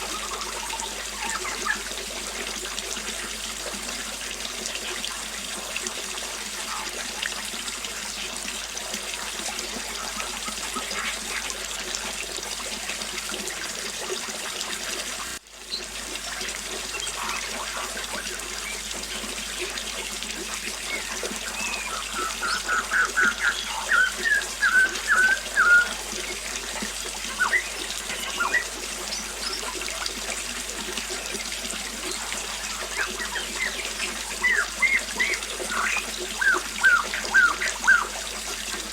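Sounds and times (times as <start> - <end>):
birds chirping: 0.0 - 1.9, 20.6 - 30.0, 31.1 - 38.2
small waterfall splashing: 0.0 - 38.9.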